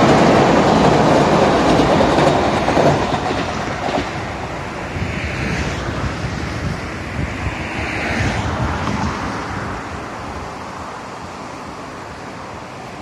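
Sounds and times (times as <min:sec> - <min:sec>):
electric train running: 0:00.0 - 0:07.6
wind buffeting the microphone: 0:00.0 - 0:13.0.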